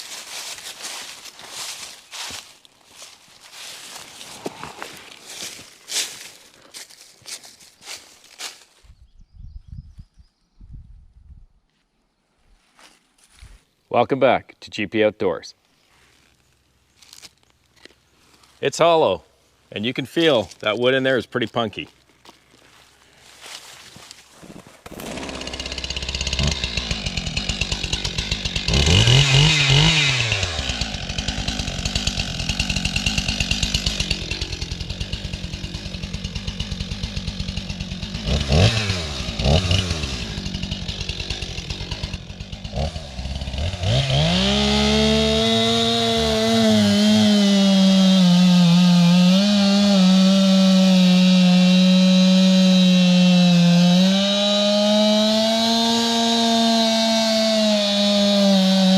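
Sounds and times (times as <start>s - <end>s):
chainsaw engine revving: 24.8s - 58.9s.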